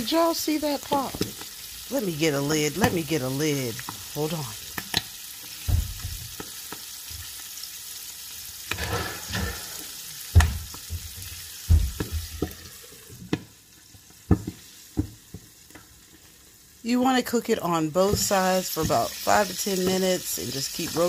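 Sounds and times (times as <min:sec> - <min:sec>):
oil sizzling in a skillet: 0:00.0 - 0:21.0
frying oil pops and knocks: 0:04.7 - 0:07.2, 0:10.2 - 0:13.5, 0:14.1 - 0:15.9.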